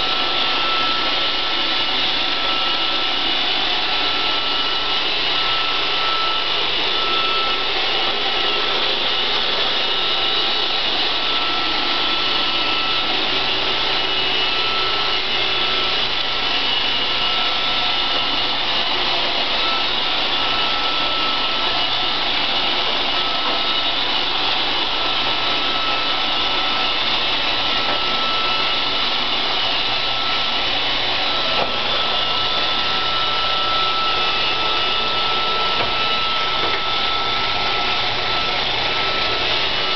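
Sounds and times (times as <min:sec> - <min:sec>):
robot vacuum whirring: 0:00.0 - 0:39.9.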